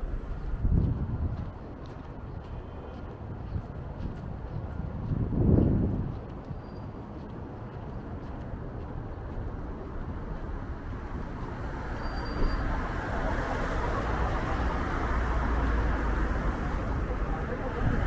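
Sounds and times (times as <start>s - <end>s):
city street traffic: 0.0s - 18.0s
wind rumble on microphone: 0.0s - 18.0s.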